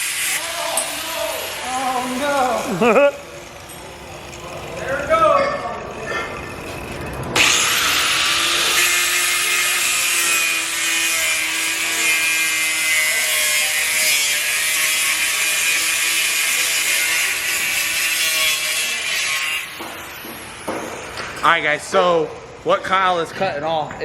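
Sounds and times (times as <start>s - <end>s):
cut-off grinder cutting steel: 0.0s - 21.2s.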